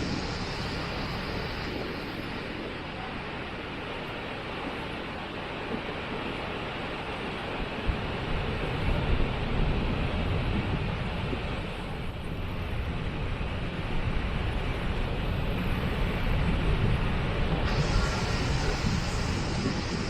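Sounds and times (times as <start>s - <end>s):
waterfall rushing: 17.7s - 20.0s.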